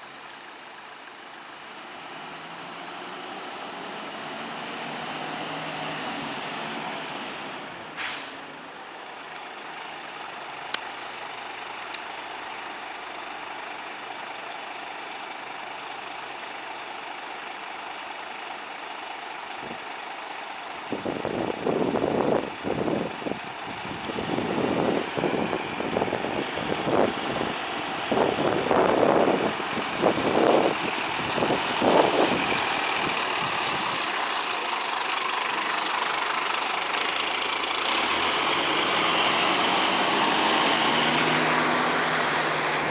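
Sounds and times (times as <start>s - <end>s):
diesel engine running: 0.0s - 42.9s
air brake hiss: 8.0s - 8.6s.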